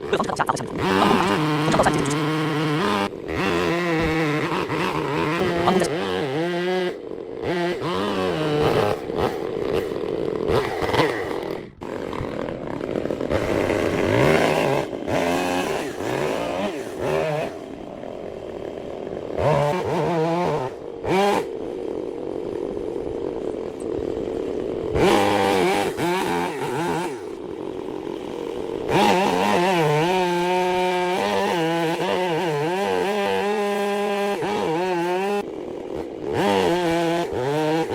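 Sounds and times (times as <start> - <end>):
chainsaw cutting wood: 0.0 - 37.9.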